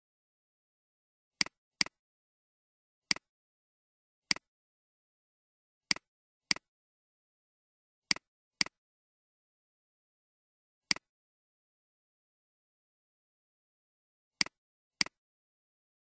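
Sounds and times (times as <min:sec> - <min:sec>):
computer mouse clicking: 0:05.9 - 0:06.7, 0:08.1 - 0:08.8, 0:14.4 - 0:15.2.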